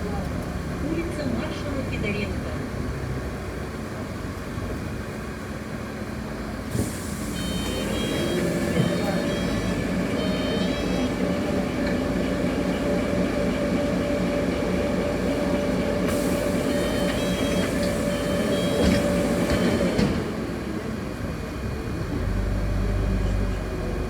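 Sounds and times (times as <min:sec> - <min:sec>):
bus running whine: 0:00.0 - 0:24.0.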